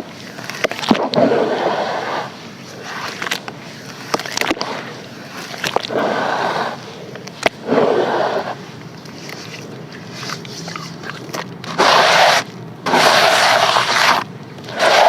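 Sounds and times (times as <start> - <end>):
sand and charcoal crumbling: 11.0 - 15.0.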